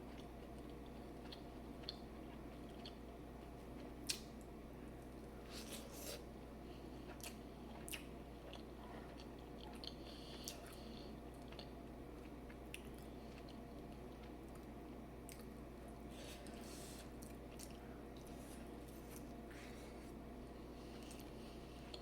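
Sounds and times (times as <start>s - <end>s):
low room hum: 0.0s - 22.0s
person chewing food: 0.0s - 22.0s.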